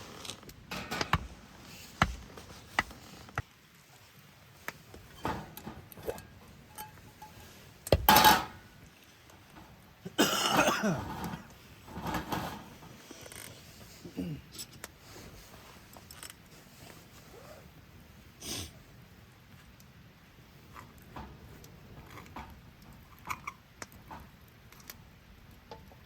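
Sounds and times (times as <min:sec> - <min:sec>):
cookware and utensils clinking: 0:00.7 - 0:01.4, 0:05.1 - 0:08.7.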